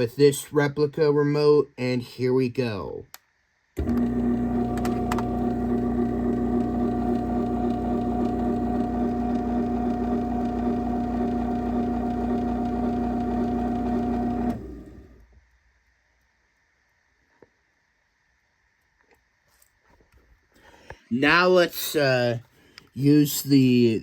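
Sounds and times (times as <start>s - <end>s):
garage door opener motor hum: 3.8s - 15.3s.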